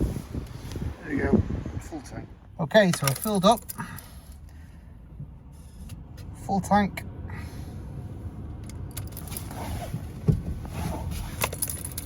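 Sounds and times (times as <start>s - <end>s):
light jingling handling noises: 2.7s - 4.6s, 8.6s - 10.2s, 10.9s - 12.0s.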